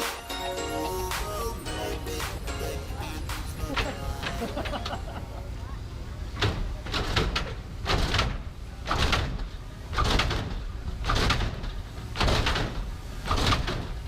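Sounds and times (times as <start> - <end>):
car hydraulics slamming and squeaking: 6.3 - 14.0.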